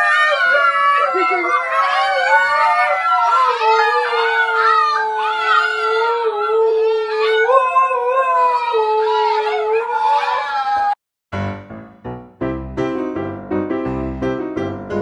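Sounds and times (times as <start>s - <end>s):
dog low howl: 0.0s - 11.0s
puppies howling: 0.0s - 11.0s.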